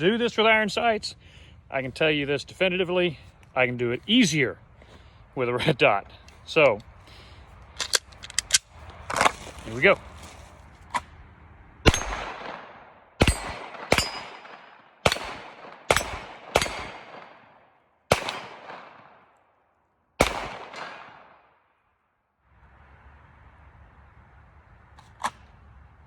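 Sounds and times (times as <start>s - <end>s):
pistol shots echoing: 11.9s - 19.4s, 20.2s - 21.6s
steel plate targets ringing: 13.2s - 14.4s.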